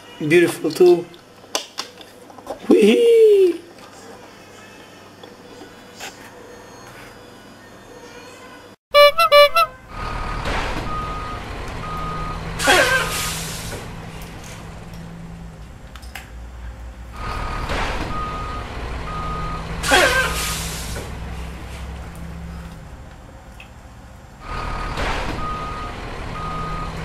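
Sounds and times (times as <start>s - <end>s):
truck engine rumble: 9.0s - 27.0s
reversing beeps: 10.9s - 13.1s, 18.1s - 20.4s, 25.4s - 27.0s
air brakes hissing: 12.1s - 15.4s, 17.2s - 22.7s.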